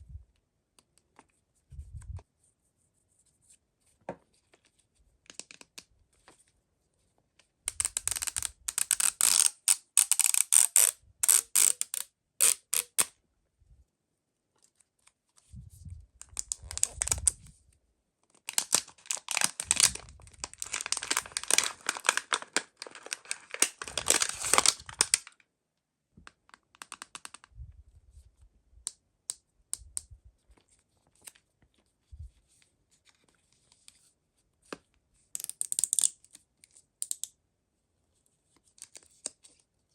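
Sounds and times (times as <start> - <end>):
packaging crinkling and tearing: 7.7 - 13.1, 16.3 - 17.4, 18.4 - 25.4.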